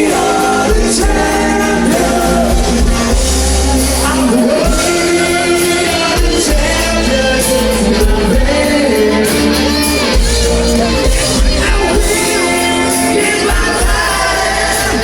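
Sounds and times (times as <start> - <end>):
crowd shouting: 0.0 - 15.0
live rock band playing: 0.0 - 15.0.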